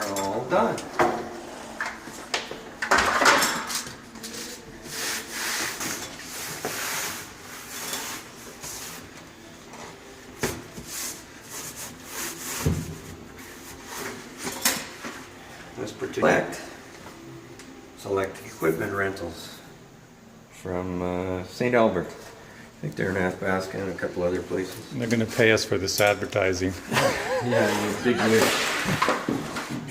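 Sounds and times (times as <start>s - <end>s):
objects rubbing and scraping: 4.2s - 9.2s, 10.7s - 15.4s, 27.0s - 29.9s.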